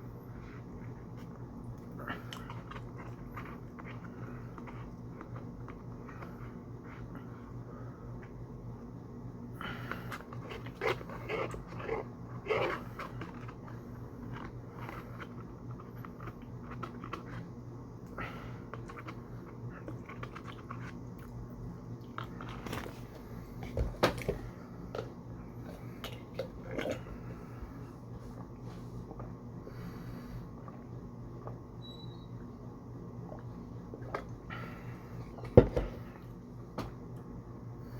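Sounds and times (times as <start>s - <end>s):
steady low hum: 0.0s - 37.9s
biting and chewing: 1.0s - 7.1s, 9.8s - 23.2s.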